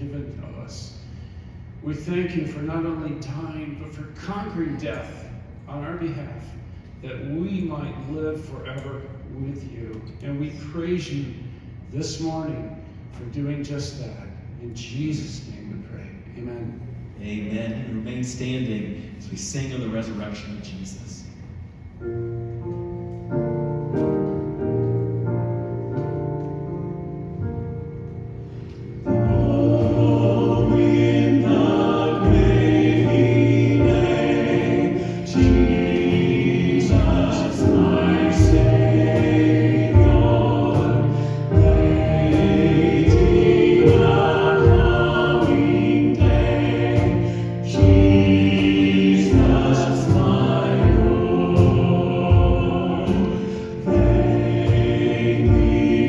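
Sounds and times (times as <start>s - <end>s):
held keyboard chords: 22.0s - 56.0s
choir-like singing: 28.9s - 56.0s.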